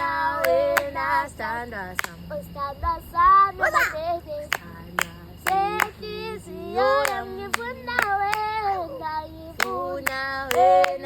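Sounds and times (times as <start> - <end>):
group singing: 0.0 - 2.6, 3.6 - 11.0
hand claps: 2.0 - 2.2, 4.5 - 6.0, 7.0 - 8.9, 9.6 - 11.0.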